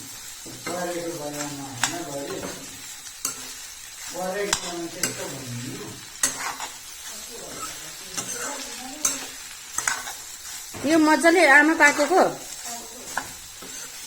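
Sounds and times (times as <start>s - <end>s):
sausage sizzling in oil: 0.0s - 14.0s
utensil clicking against pan: 0.6s - 2.6s, 4.4s - 5.3s, 6.2s - 6.8s, 7.5s - 10.2s.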